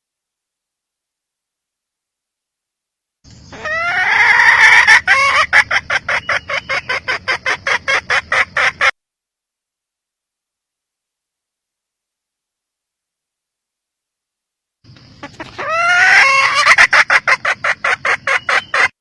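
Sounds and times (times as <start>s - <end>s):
hen calling: 3.3s - 8.9s, 15.1s - 19.0s.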